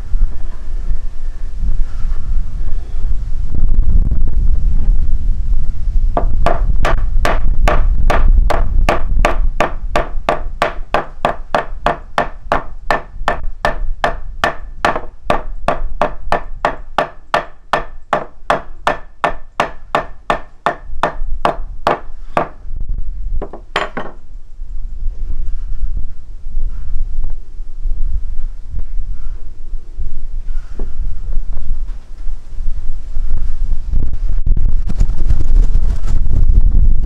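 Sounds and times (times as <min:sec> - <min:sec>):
wind rumble on microphone: 0:00.0 - 0:37.0
sharp knocks: 0:06.2 - 0:22.6, 0:23.4 - 0:24.2.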